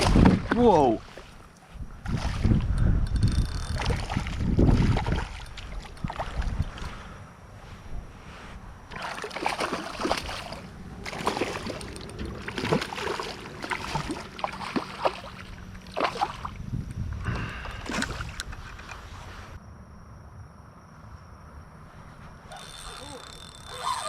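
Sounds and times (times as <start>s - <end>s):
water sloshing: 3.5s - 7.1s, 8.8s - 16.7s, 17.6s - 19.4s.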